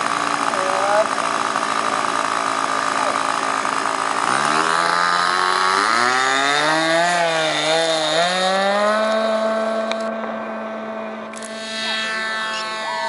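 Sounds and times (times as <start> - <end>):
model airplane engine buzzing: 0.0 - 13.0.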